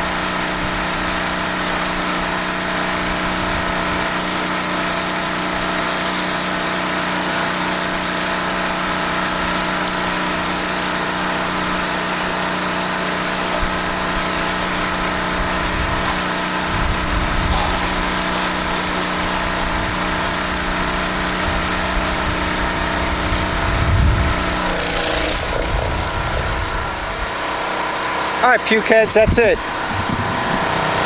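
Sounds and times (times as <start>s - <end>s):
pressure washer engine running: 0.0s - 31.0s
water spray hissing: 0.8s - 21.2s.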